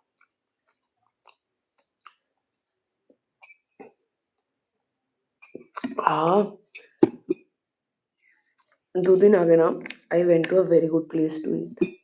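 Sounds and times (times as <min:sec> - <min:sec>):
mouth clicks of chewing: 0:00.1 - 0:02.4, 0:05.4 - 0:06.0, 0:09.8 - 0:10.6.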